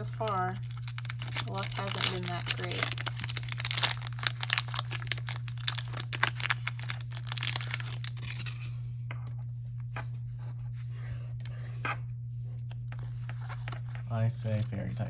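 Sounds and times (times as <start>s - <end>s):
foil pack tearing and crinkling: 0.0s - 8.8s, 12.9s - 14.0s
low hum: 0.0s - 15.0s.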